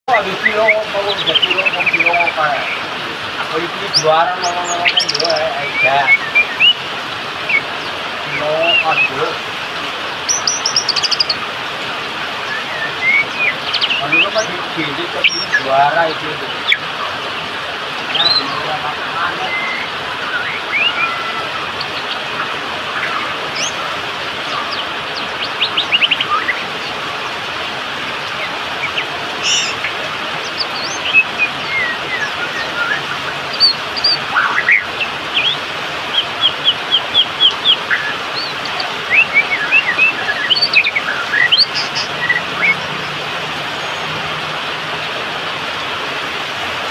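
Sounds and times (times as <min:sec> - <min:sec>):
steady background hiss: 0:00.1 - 0:46.9
songbird whistling song: 0:00.2 - 0:02.8, 0:03.8 - 0:06.8, 0:07.4 - 0:09.4, 0:10.3 - 0:11.4, 0:12.4 - 0:16.9, 0:18.1 - 0:22.2, 0:22.9 - 0:26.6, 0:28.4 - 0:43.0.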